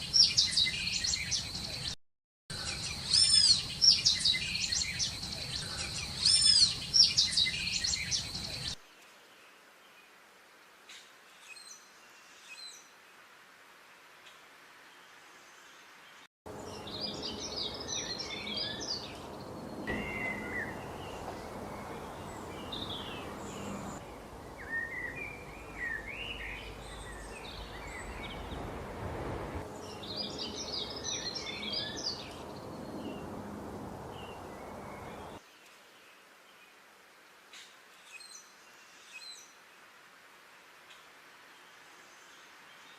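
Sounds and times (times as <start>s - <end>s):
small birds chirping: 0.0s - 9.6s, 15.5s - 35.8s
steady background hiss: 3.6s - 42.9s.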